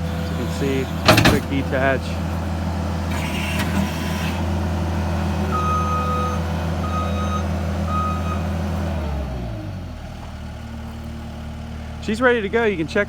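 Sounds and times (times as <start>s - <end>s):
skid steer engine running: 0.0s - 13.0s
backup alarm beeping: 5.5s - 8.5s.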